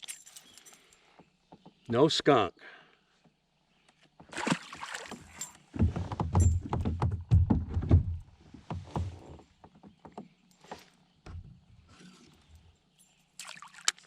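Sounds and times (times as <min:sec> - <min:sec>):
knocks and bumps on kayak: 0:04.2 - 0:11.7.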